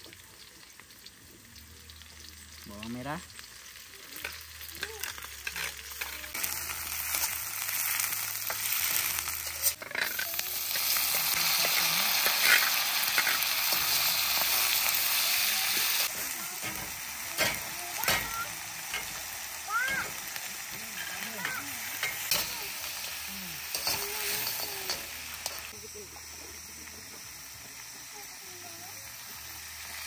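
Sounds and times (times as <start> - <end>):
vegetables sizzling in oil: 0.0 - 30.0
metal spatula stirring in wok: 5.0 - 19.4.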